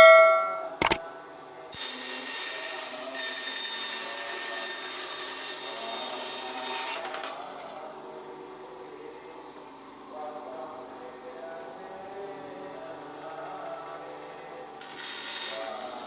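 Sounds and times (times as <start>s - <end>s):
bandsaw cutting wood: 1.8s - 7.6s, 14.8s - 16.0s.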